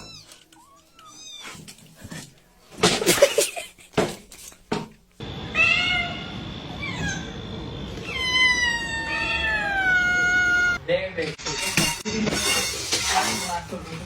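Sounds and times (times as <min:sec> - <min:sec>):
cats meowing: 0:00.0 - 0:01.8, 0:05.4 - 0:07.4, 0:08.0 - 0:10.8.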